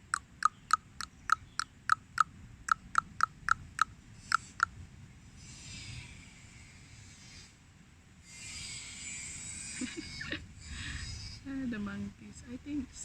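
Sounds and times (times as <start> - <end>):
bird calling short sharp notes: 0.0 - 4.7
faint hiss: 2.4 - 13.0.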